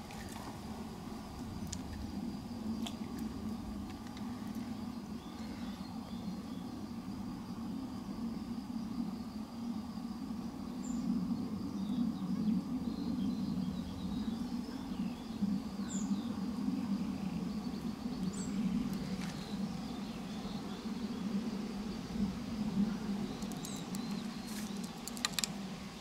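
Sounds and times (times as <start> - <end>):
small birds chirping: 22.8 - 26.0.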